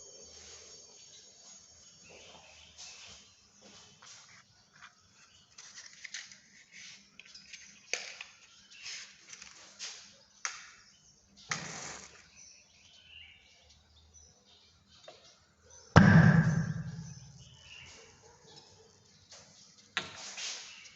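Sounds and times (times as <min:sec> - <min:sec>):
hydrogen pop: 0:16.0 - 0:17.2.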